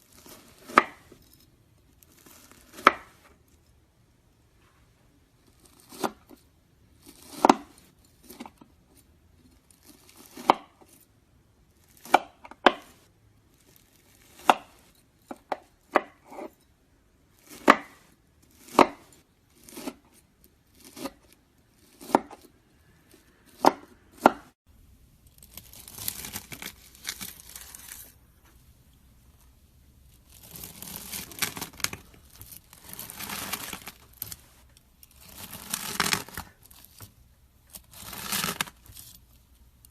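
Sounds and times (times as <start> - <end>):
knife cutting crunchy slime: 0.1 - 1.2, 2.1 - 3.2, 5.5 - 6.4, 7.0 - 8.6, 9.7 - 11.0, 11.8 - 16.6, 17.3 - 24.6, 25.4 - 28.2, 30.2 - 39.3.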